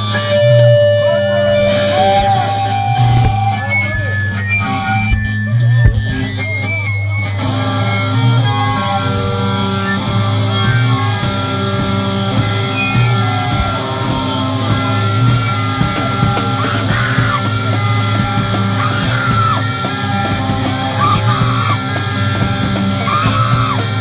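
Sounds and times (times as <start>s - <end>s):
band playing live: 8.5s - 24.0s
cymbal hits: 10.0s - 24.0s.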